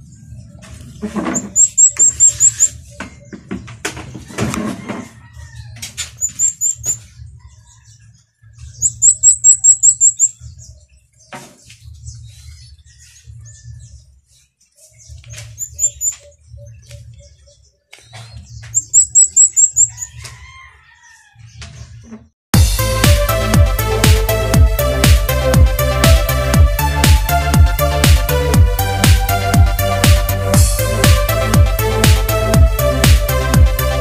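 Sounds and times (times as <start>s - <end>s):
high thin bird chirps: 1.1s - 3.4s, 6.0s - 7.1s, 8.8s - 10.5s, 14.4s - 20.2s.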